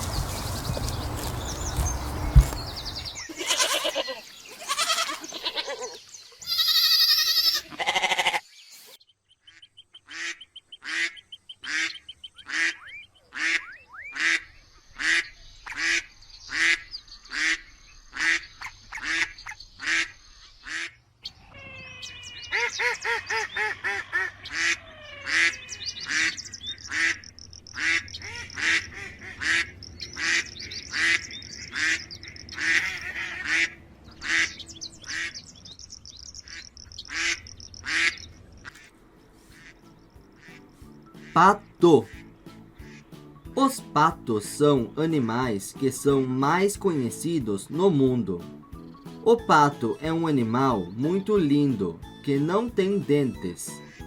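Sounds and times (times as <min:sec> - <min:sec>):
loud animal call: 0:03.2 - 0:08.4, 0:20.7 - 0:35.4
ducks quacking: 0:09.6 - 0:35.4, 0:36.4 - 0:43.7.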